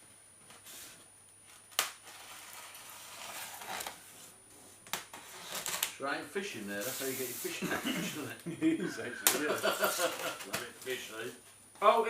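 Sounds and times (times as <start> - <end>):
packaging rustling: 9.3 - 11.3.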